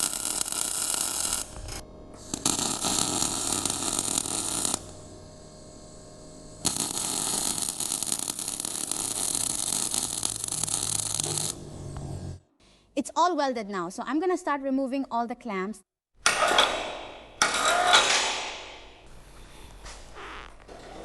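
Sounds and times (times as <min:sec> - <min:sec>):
arc welding crackling hiss: 0:00.0 - 0:12.4.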